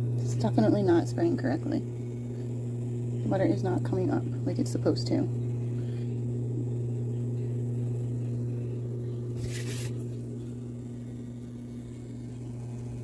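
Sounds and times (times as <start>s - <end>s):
dishwasher pump humming: 0.0s - 13.0s.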